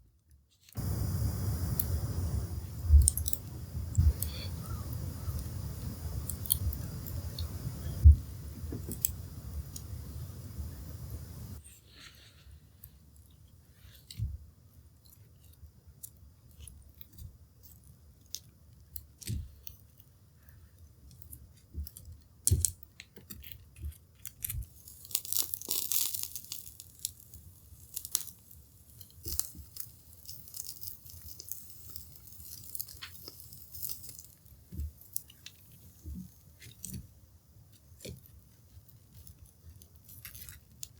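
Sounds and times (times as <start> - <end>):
charcoal crackling and popping: 0.7 - 11.6, 21.1 - 40.9
tofu sizzling on a grill: 24.8 - 36.4.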